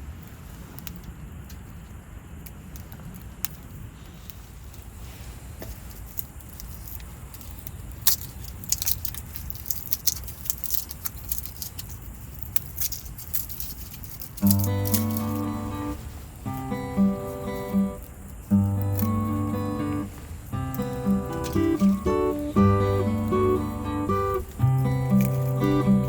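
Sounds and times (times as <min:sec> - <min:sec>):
light ticking and crackling: 0:05.7 - 0:26.0
acoustic guitar music: 0:14.4 - 0:26.0.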